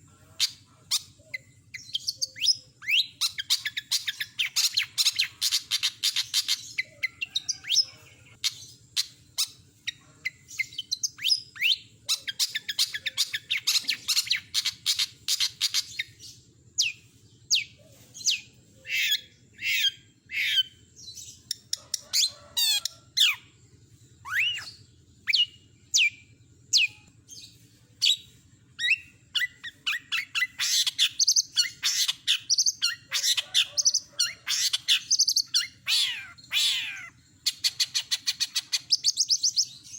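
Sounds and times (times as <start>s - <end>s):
shrike singing trills: 0.0s - 39.9s.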